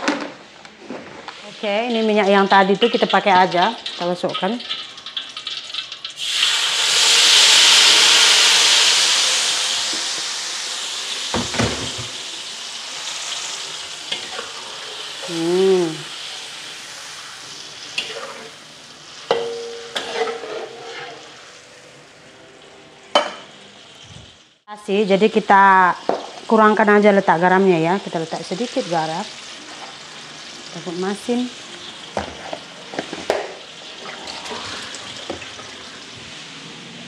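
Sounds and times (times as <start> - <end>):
paste sizzling in hot oil: 1.4 - 22.9, 25.3 - 37.0
spatula scraping in a wok: 16.2 - 18.6, 19.3 - 21.6, 29.4 - 30.5, 31.9 - 36.5.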